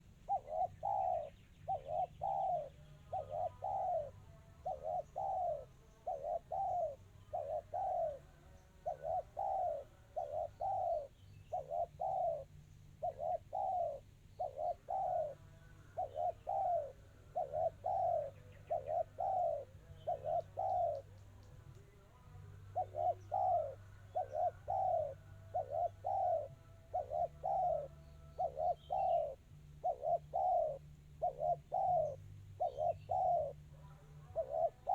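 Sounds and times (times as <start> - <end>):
dove cooing: 0.0 - 21.4, 22.4 - 34.9
low steady hum: 0.0 - 34.9.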